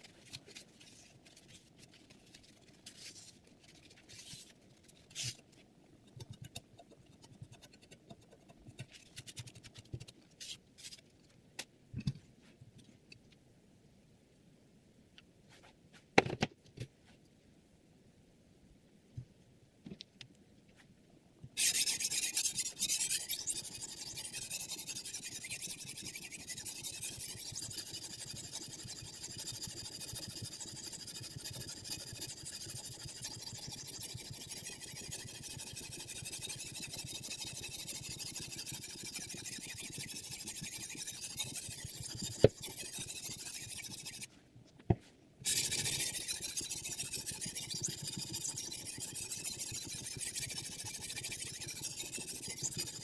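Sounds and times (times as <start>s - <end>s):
sharpening stone scraping knife: 21.6s - 44.3s, 45.5s - 53.0s.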